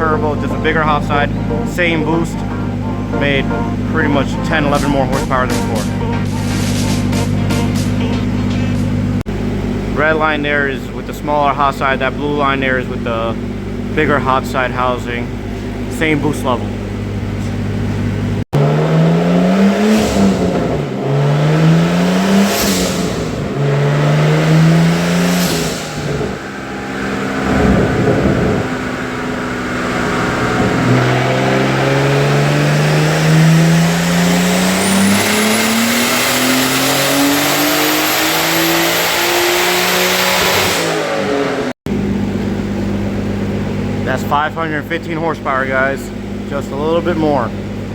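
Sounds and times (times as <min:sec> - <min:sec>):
turbo whistle: 0:00.0 - 0:09.0
turbocharged engine revving: 0:00.0 - 0:47.9.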